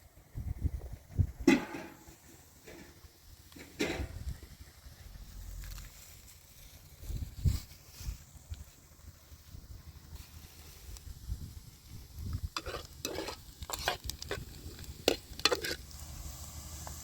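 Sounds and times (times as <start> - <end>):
low rumble: 4.0 - 15.1
utensil scraping a pan: 12.4 - 16.0.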